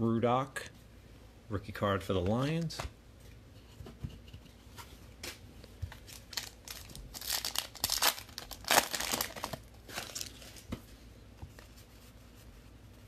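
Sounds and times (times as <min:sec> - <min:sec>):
plastic wrapper crinkling and tearing: 0:05.9 - 0:10.7.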